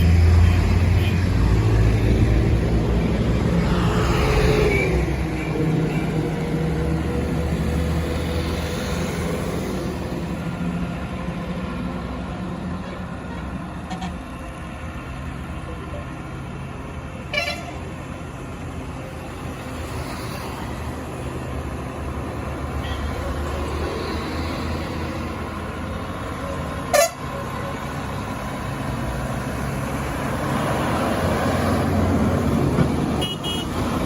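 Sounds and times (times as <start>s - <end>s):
truck horn toot: 17.3s - 17.8s, 26.9s - 27.3s, 33.2s - 33.8s.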